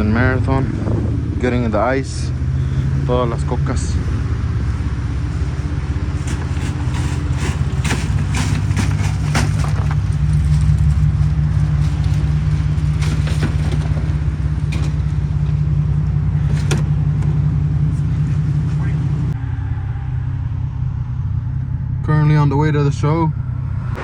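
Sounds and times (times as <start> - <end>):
truck engine droning: 0.0 - 24.0
clicks and knocks: 6.2 - 15.6, 16.4 - 17.5.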